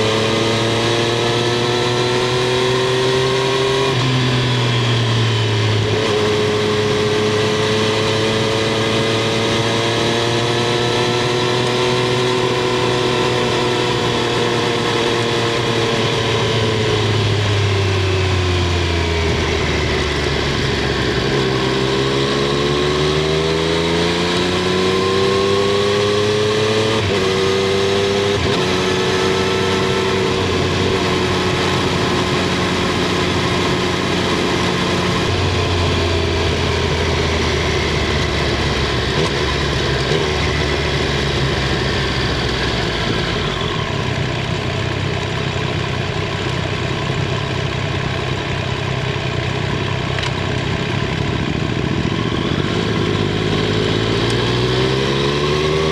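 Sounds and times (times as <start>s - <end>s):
motorcycle engine and exhaust: 0.0s - 55.9s.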